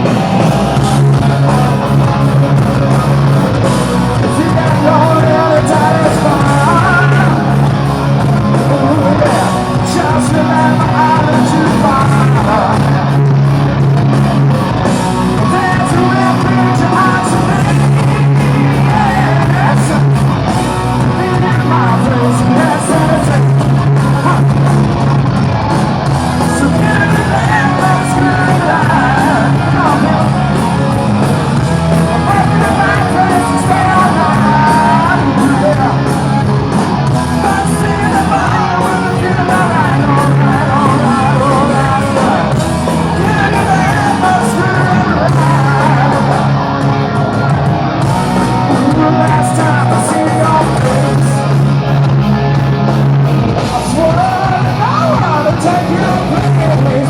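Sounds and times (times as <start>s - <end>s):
rock band playing: 0.0s - 57.0s
person singing: 4.2s - 7.8s, 8.4s - 13.2s, 15.3s - 24.7s, 26.4s - 30.9s, 32.0s - 51.7s, 53.6s - 57.0s.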